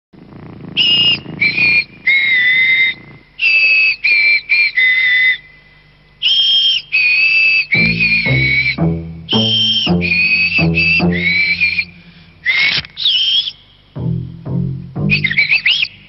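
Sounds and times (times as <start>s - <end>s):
budgie whistling a tune: 0.8s - 5.6s, 6.2s - 16.0s
music with deeper notes: 7.8s - 12.1s, 14.0s - 15.6s.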